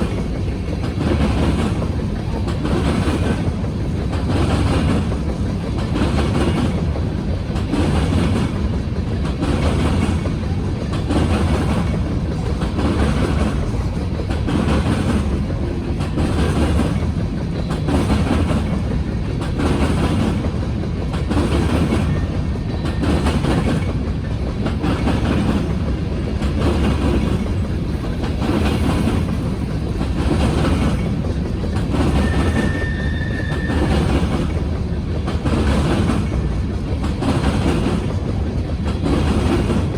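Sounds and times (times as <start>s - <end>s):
train wheels clacking on rails: 0.0s - 39.9s
high wheel squeal: 32.0s - 34.3s.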